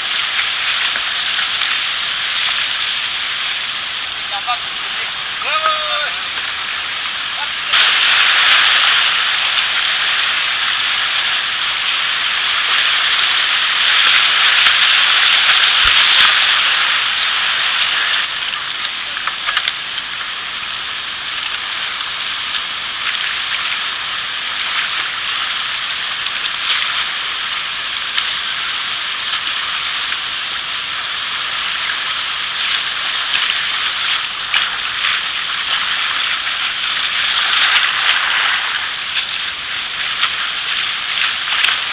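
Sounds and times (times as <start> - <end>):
river water rushing: 0.0 - 41.9
short water splashes: 32.7 - 41.9.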